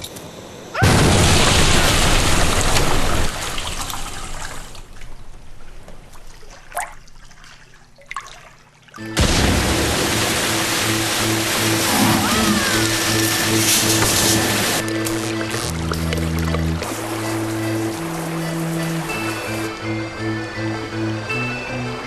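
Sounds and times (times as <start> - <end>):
water gushing and splashing: 9.5 - 14.9.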